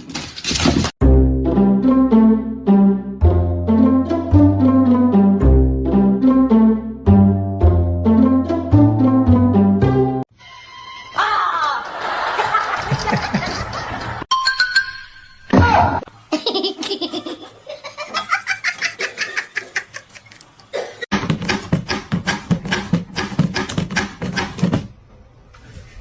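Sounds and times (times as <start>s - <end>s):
background music: 1.0s - 11.4s
person laughing: 11.6s - 14.2s, 16.3s - 20.4s.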